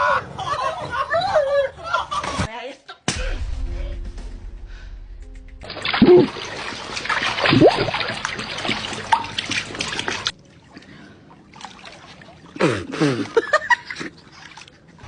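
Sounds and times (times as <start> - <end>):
water splashing and sloshing: 5.6 - 15.0.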